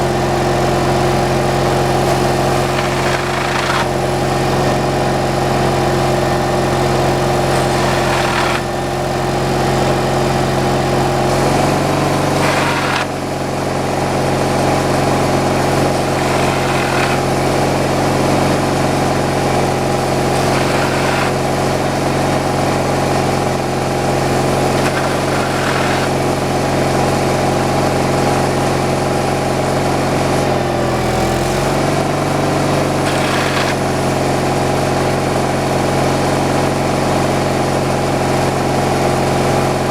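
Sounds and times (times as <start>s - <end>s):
engine running: 0.0s - 39.9s
short rasp of cutter: 1.2s - 4.9s, 6.7s - 9.0s, 11.3s - 13.4s, 15.0s - 22.0s, 24.1s - 26.8s, 31.0s - 34.2s.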